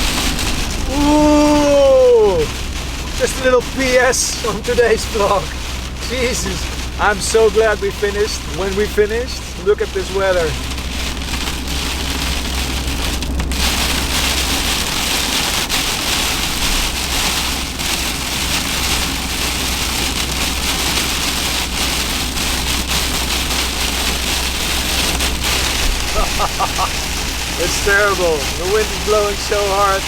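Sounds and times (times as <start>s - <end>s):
heavy rain on van roof: 0.0s - 30.0s
low rumble: 0.0s - 30.0s.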